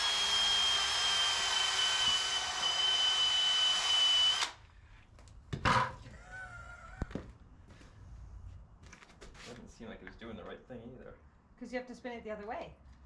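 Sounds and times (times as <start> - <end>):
power drill whining: 0.0 - 4.6.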